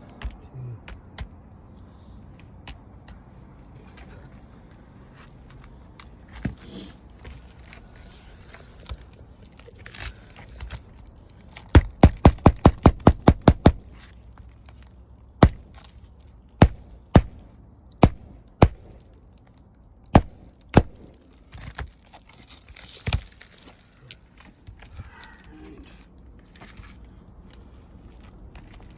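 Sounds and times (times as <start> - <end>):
scraping and handling shingles: 3.9 - 28.9
hammer driving nails: 11.7 - 14.0, 15.4 - 15.8, 16.6 - 19.0.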